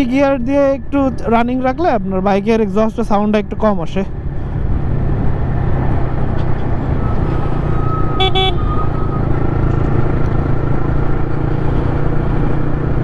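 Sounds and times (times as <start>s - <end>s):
motorcycle engine cruising: 4.1s - 13.0s
vehicle horn toot: 8.0s - 8.9s.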